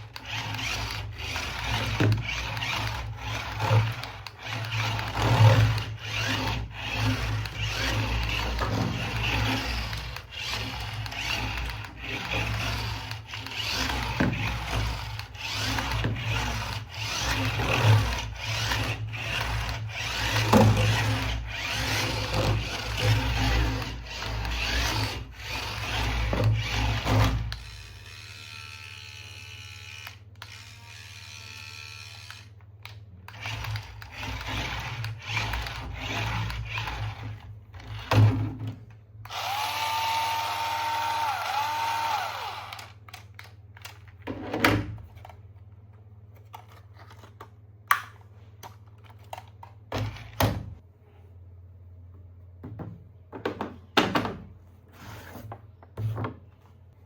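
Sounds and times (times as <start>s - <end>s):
whirring drill-like noise: 0.0s - 32.6s, 39.2s - 43.0s.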